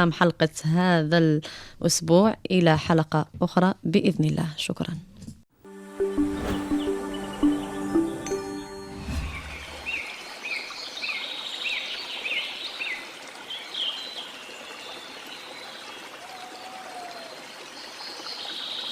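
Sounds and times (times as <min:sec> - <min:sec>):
running water rushing: 0:09.0 - 0:11.2.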